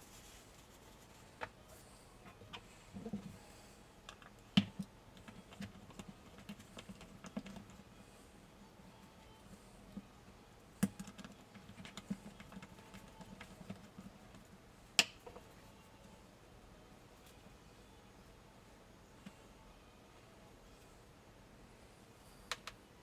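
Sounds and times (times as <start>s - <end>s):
small parts clicking and tapping: 10.8s - 15.6s, 22.4s - 22.8s.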